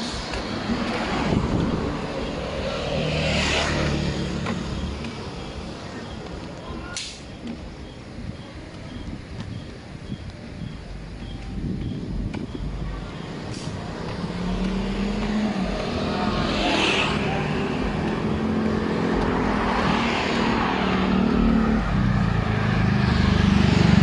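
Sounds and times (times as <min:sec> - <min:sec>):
vehicle engines in street traffic: 0:00.0 - 0:24.0.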